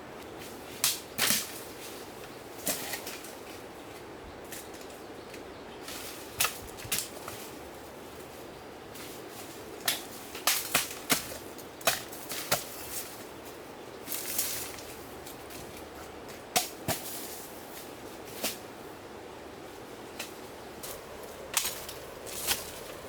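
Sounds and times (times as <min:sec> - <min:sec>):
bamboo cracking and knocking: 0:00.8 - 0:03.5, 0:04.5 - 0:07.5, 0:09.8 - 0:13.2, 0:14.1 - 0:17.4, 0:20.1 - 0:23.0.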